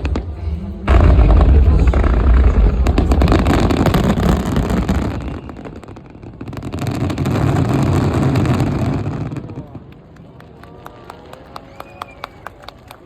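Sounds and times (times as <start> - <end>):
low rumble: 0.0 - 6.2
fireworks crackling: 0.0 - 12.4.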